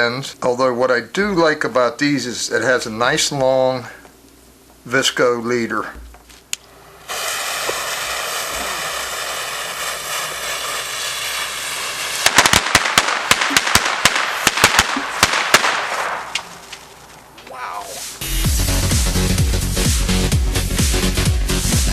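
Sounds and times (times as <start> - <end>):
fuse hissing: 4.9 - 20.2
firecrackers banging: 5.8 - 18.9.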